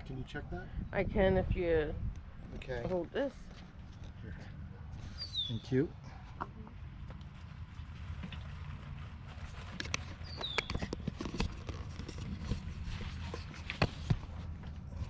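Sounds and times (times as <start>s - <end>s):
objects being handled: 6.3s - 15.0s.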